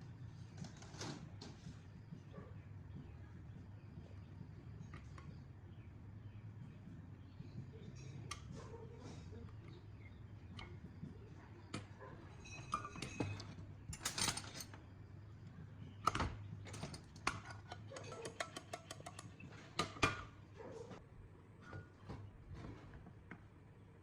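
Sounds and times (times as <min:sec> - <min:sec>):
faint low hum: 0:00.0 - 0:24.0
small tools clicking and clinking: 0:11.7 - 0:15.0, 0:16.0 - 0:20.3.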